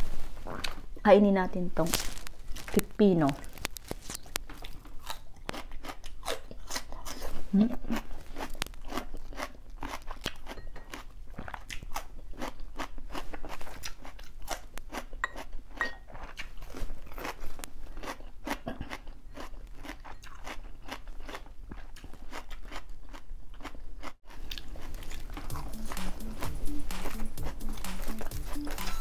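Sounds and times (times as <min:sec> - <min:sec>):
crunching cucumber bites: 0:01.8 - 0:25.7.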